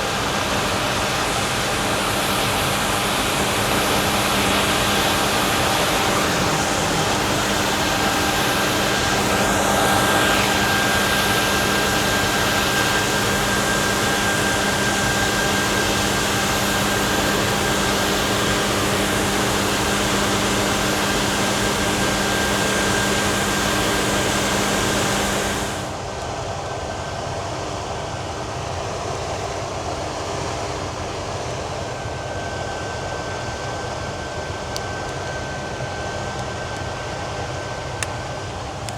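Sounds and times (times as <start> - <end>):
farm machinery running: 0.0 - 26.9
constant hum: 0.0 - 38.9
rushing noise: 3.2 - 12.7.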